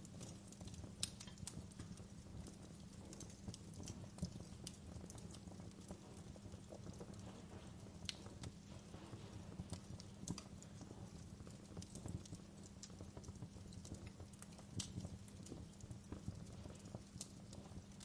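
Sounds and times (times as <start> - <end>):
burning wood crackling and popping: 0.0 - 18.0
low rumble of flames: 0.0 - 18.0.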